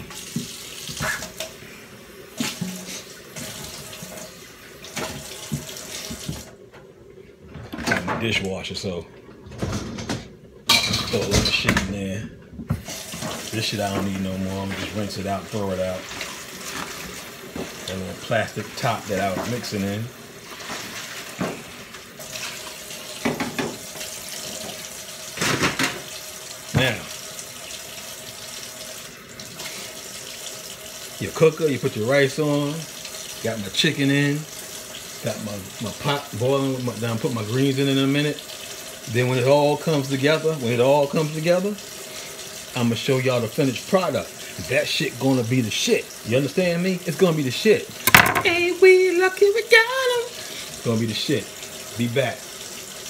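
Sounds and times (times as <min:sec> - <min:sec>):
water splashes and knocks: 0:00.0 - 0:01.5, 0:02.4 - 0:06.9, 0:09.4 - 0:15.3, 0:16.0 - 0:18.0, 0:18.8 - 0:19.8, 0:20.5 - 0:27.0, 0:48.0 - 0:48.7
tap running into sink: 0:00.0 - 0:01.6, 0:02.4 - 0:06.9, 0:23.1 - 0:27.0, 0:48.0 - 0:48.6
faucet running into sink: 0:00.0 - 0:06.6, 0:10.8 - 0:53.0.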